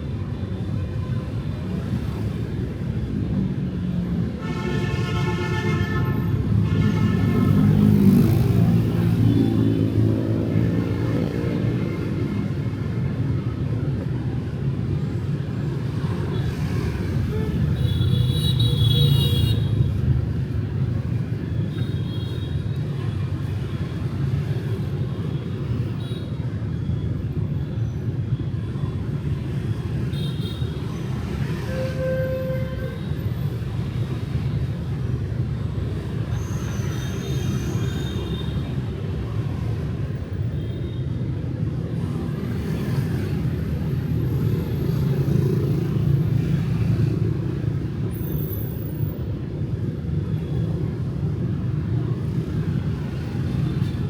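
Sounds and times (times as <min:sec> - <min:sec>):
city street traffic rumble: 0:00.0 - 0:54.0
motorbikes passing: 0:06.6 - 0:17.4.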